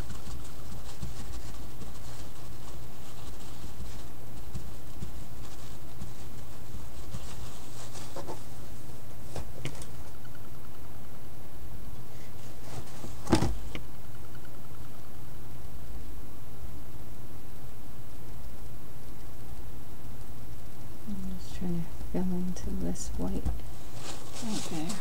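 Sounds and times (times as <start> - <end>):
faint tapping and rubbing: 0.0 - 10.2, 23.3 - 25.0
steady low hum: 0.0 - 25.0.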